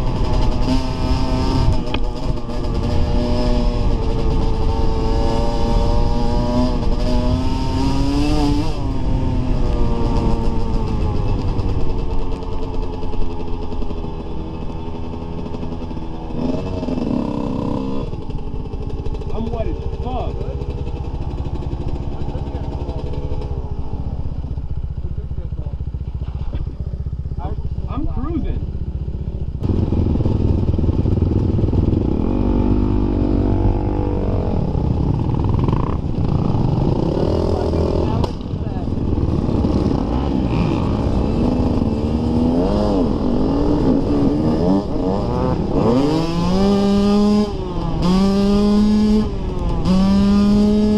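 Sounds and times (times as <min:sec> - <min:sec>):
dirt bike engine running: 0:00.0 - 0:50.9.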